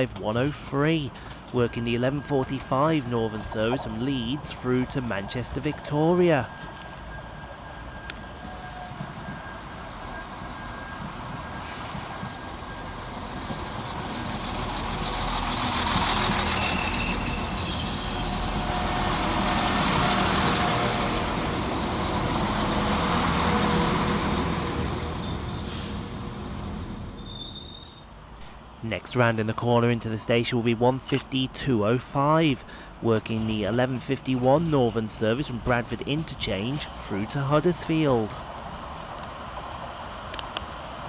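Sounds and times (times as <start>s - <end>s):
train engine and wheel noise: 0.0s - 41.0s
high-pitched wheel squeals: 6.4s - 21.1s, 22.1s - 28.1s.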